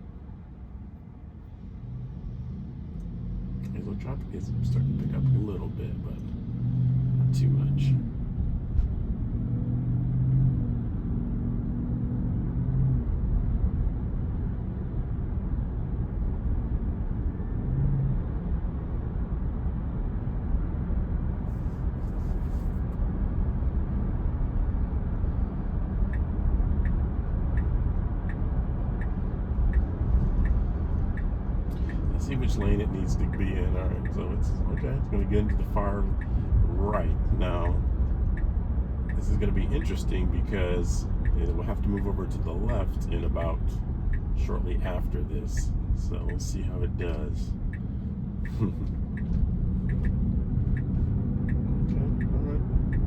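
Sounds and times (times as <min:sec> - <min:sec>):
road and tyre noise in car: 0:00.0 - 0:53.0
turn signal ticking: 0:25.3 - 0:53.0.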